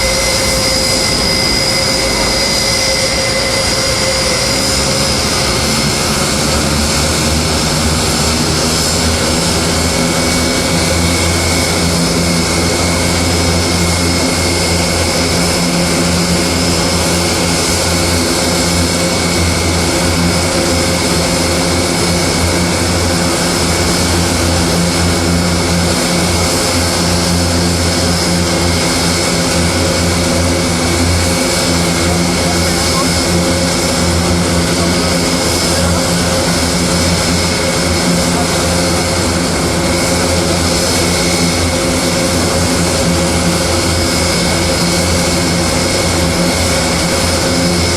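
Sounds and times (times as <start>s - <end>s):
propeller airplane engines droning: 0.0s - 47.9s.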